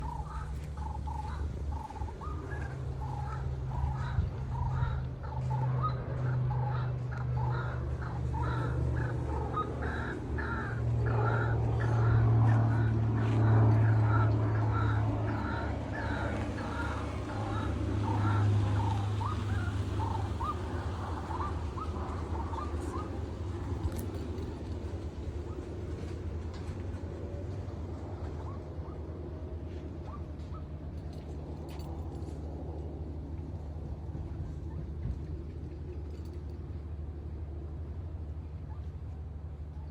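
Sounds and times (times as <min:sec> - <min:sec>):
birds calling: 0:00.0 - 0:26.8
low hum: 0:00.0 - 0:39.9.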